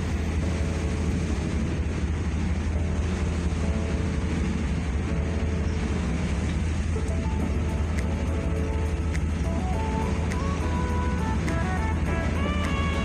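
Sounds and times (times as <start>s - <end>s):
constant hiss: 0.0s - 13.0s
ship engine low drone: 0.0s - 13.0s.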